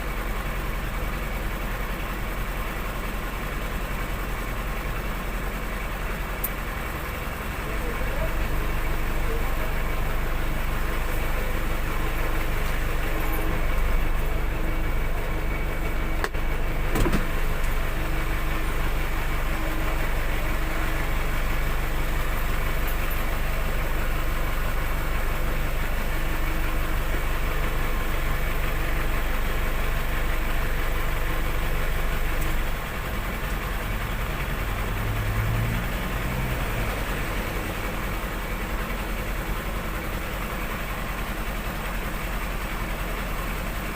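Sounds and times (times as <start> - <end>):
vehicle engine running: 0.0 - 43.9
brief knock: 16.2 - 17.3.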